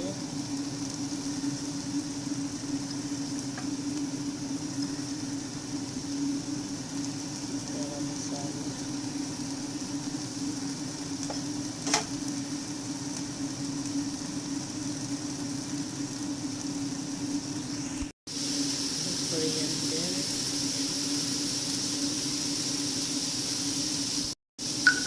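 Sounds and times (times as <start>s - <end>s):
food sizzling in a frying pan: 0.0s - 25.0s.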